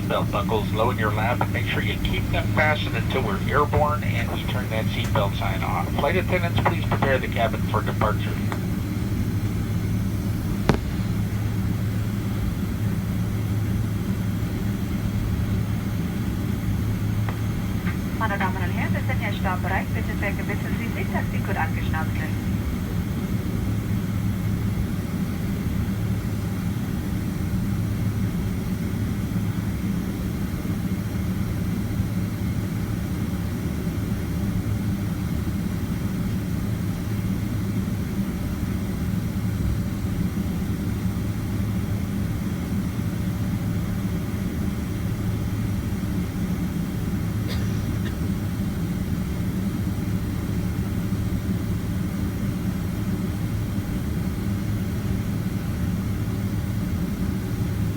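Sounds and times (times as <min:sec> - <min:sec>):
jet engines droning: 0:00.0 - 0:57.9.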